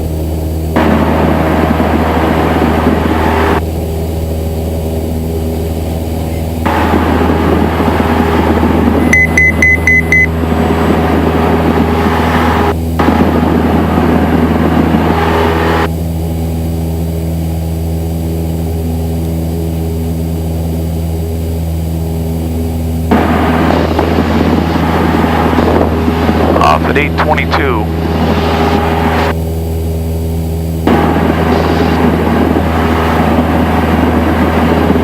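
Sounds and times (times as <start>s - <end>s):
light aircraft engine drone: 0.0s - 35.0s
short high electronic beeps: 9.0s - 10.3s.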